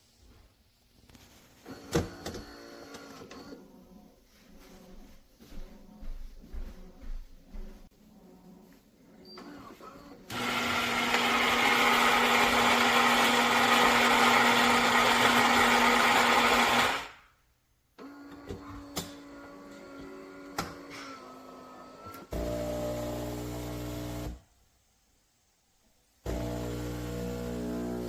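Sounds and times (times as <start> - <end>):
espresso machine whirring: 10.3 - 17.2, 26.3 - 28.0.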